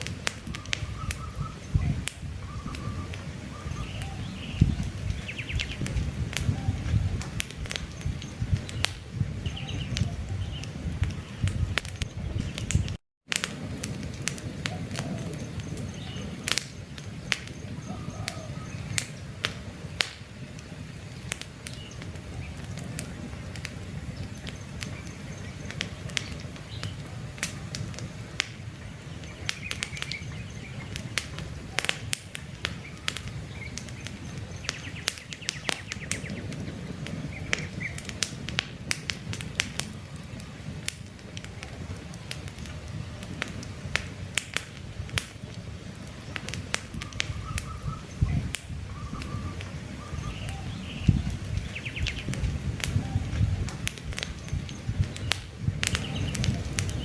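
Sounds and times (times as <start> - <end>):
campfire crackling and popping: 0.0 - 57.0
bird chirps: 0.6 - 5.9, 7.8 - 13.0, 14.7 - 19.2, 28.8 - 31.1, 32.8 - 36.5, 47.0 - 52.4, 54.2 - 57.0.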